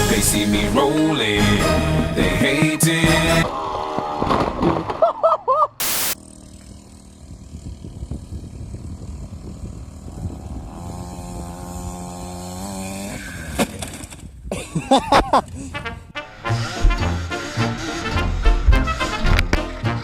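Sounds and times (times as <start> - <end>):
loud burst of hiss: 5.8 - 6.2
motorcycle engine running: 6.2 - 12.9.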